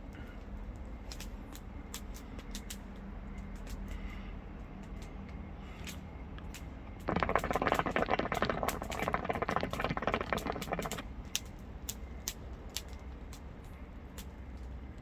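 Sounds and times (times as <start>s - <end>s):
campfire crackling: 6.4s - 15.0s
sharp pops: 7.0s - 11.1s.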